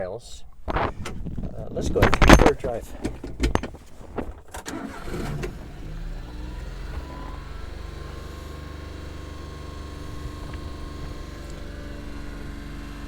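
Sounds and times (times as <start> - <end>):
clicks and knocks: 2.0 - 4.7
small engine starting and idling: 4.5 - 13.0.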